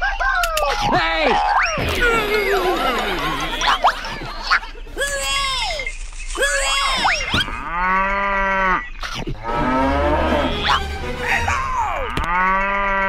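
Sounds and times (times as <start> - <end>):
cow mooing: 7.6 - 10.9, 12.1 - 13.0.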